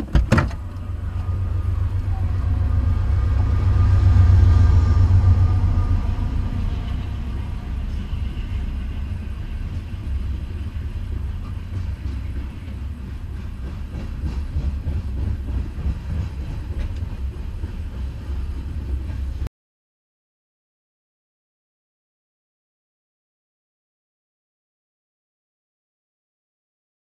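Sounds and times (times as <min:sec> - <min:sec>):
train wheels rumbling on rail: 0:00.0 - 0:19.5
wheels clicking over rail joints: 0:11.1 - 0:18.0.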